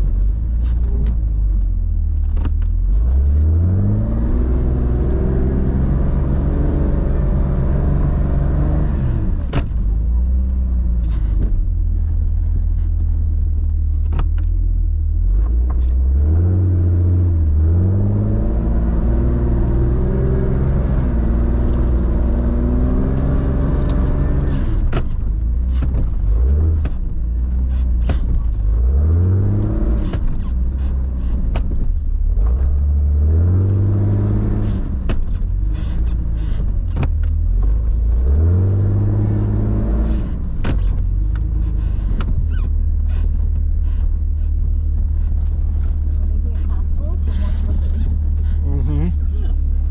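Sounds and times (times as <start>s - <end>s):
sharp clicks and knocks: 0.0s - 2.8s, 9.4s - 11.8s, 12.8s - 16.1s, 23.0s - 48.7s
engine revving in snow: 2.8s - 11.4s, 15.2s - 49.9s.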